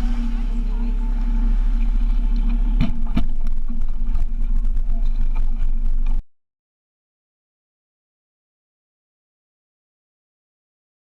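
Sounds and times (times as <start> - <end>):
outboard motor running: 0.0 - 6.2.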